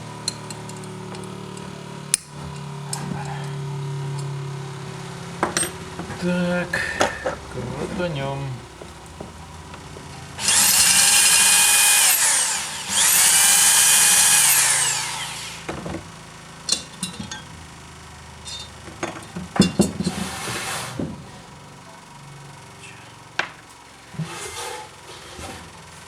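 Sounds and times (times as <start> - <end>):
metal parts clicking and knocking: 0.2 - 3.4, 18.4 - 20.2
power drill whining: 4.9 - 16.5.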